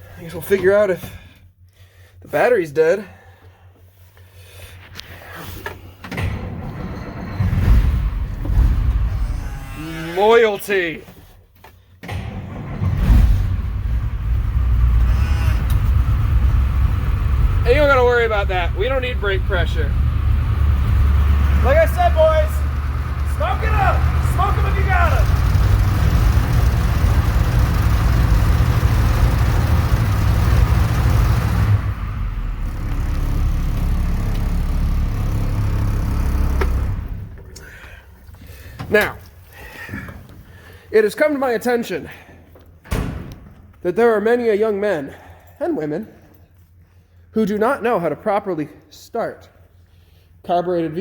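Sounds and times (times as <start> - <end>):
diesel truck engine cranking: 5.6 - 10.3, 12.0 - 39.7
truck engine idling: 12.7 - 38.7.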